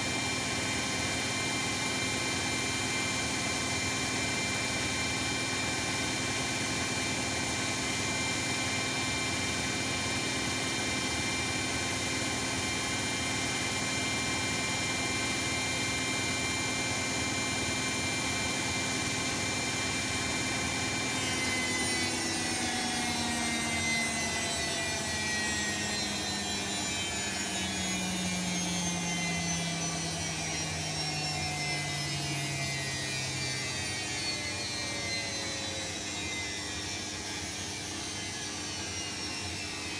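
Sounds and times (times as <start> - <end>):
washing machine spinning with whine: 0.0 - 39.9.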